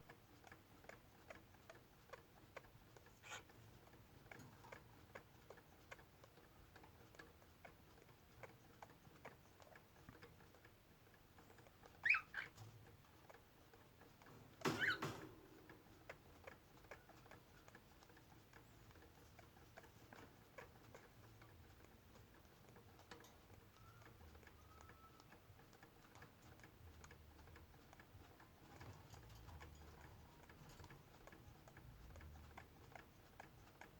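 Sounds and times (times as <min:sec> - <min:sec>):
harsh bird squawk: 0:12.0 - 0:12.5
bird chirp: 0:12.0 - 0:12.6
bird clicking and tapping in cage: 0:14.3 - 0:15.8.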